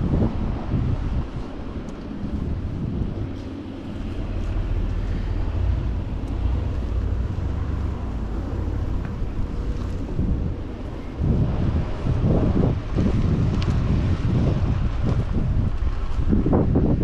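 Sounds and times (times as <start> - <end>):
road and traffic noise: 0.0 - 17.0
wind rumbling on microphone: 0.0 - 17.0.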